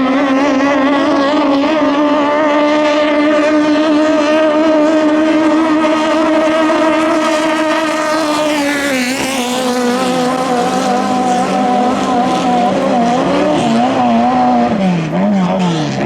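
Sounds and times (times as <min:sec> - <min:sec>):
lower engine note: 0:00.0 - 0:16.0
racing boat engine buzzing: 0:00.0 - 0:16.0.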